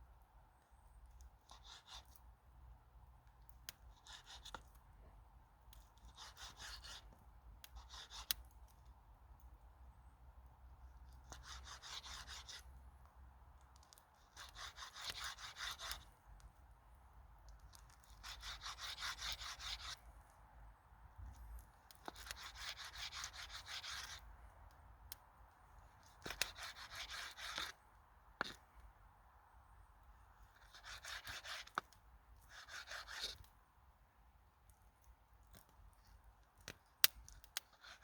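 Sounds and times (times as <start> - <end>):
rasping scrapes on wood: 11.4 - 12.6, 14.3 - 16.0, 18.2 - 20.0, 22.0 - 24.2, 26.2 - 27.7, 30.6 - 31.8, 32.5 - 33.4.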